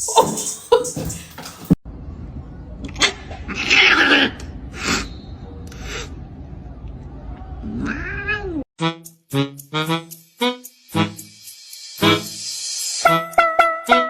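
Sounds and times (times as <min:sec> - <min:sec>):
cat meowing: 0:07.7 - 0:08.6.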